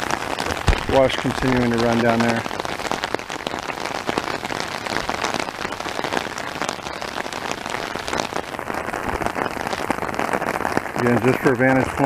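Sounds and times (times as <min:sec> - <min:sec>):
heavy rain on ground and brush: 0:00.0 - 0:12.0.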